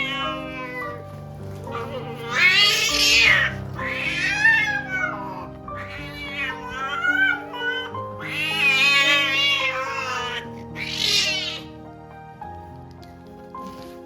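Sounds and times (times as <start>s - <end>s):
cat yowling: 0.0s - 1.0s, 1.7s - 11.8s
background music with held notes: 0.0s - 14.0s.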